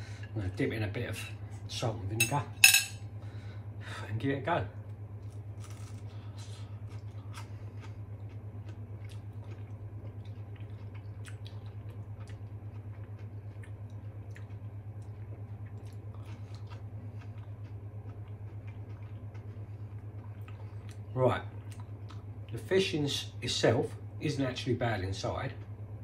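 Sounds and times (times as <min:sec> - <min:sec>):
low pulsing hum: 0:00.0 - 0:26.0
person chewing crunchy fish: 0:05.2 - 0:22.5.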